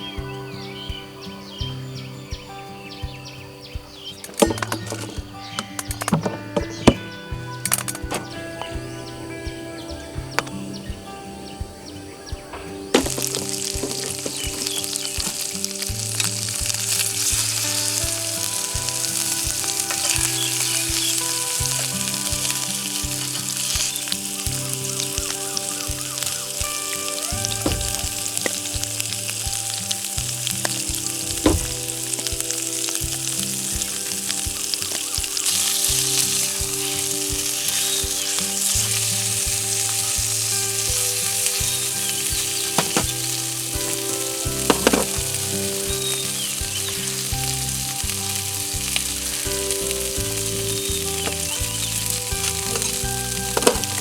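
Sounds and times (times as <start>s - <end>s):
food sizzling in a frying pan: 12.5s - 54.0s.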